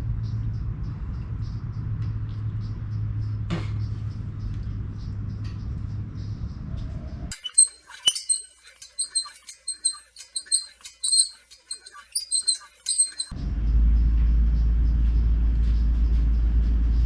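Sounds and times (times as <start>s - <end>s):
steady low rumble: 13.3s - 17.0s.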